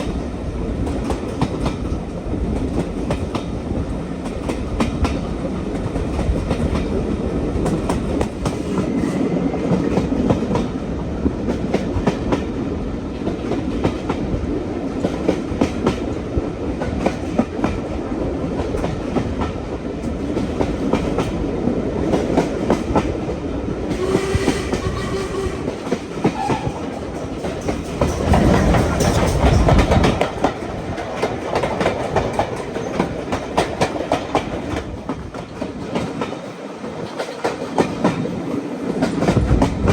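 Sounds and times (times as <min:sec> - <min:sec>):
train wheels clacking on rail joints: 0:00.0 - 0:21.4, 0:22.0 - 0:39.9.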